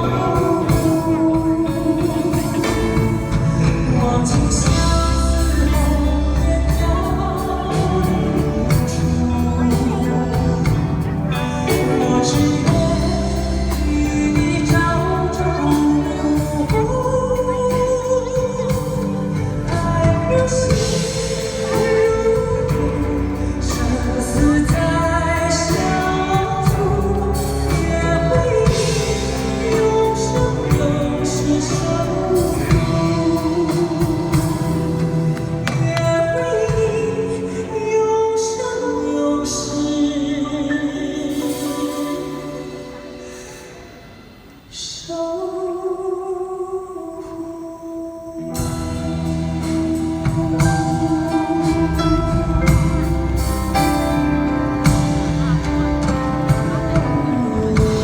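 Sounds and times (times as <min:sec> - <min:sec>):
person singing: 0:00.0 - 0:58.0
instrumental accompaniment: 0:48.4 - 0:58.0.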